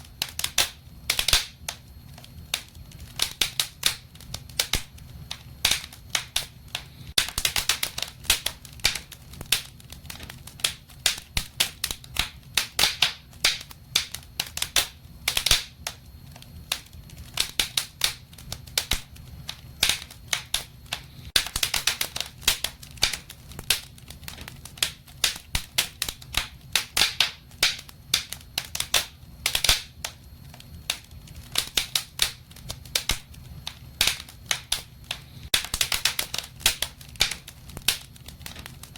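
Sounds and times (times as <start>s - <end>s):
low rumble of flames: 0.0s - 38.9s
wood fire crackling and popping: 0.0s - 38.9s.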